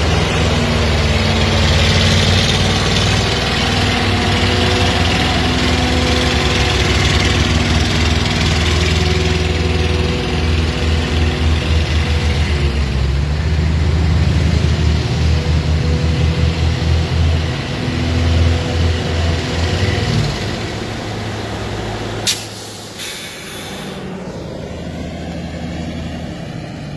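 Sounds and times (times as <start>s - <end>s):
heavy diesel engine under load: 0.0s - 26.9s
high hiss: 22.2s - 24.2s
sharp burst: 22.2s - 24.2s.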